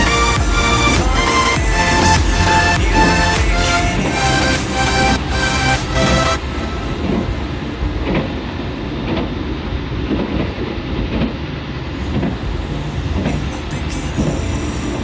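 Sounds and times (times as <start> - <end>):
train rumbling on rails: 6.0 - 15.0.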